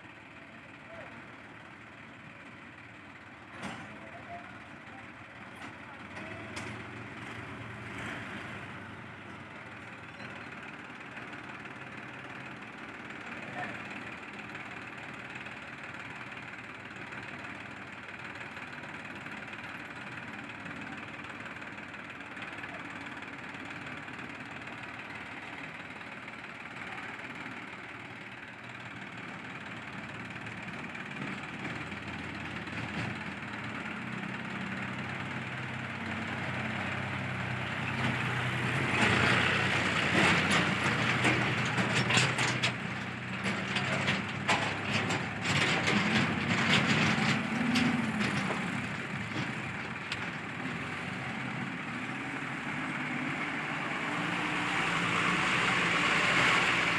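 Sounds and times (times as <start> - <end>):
diesel engine revving: 6.4 - 9.1, 33.8 - 56.9
metal clanks and scraping: 38.9 - 50.5.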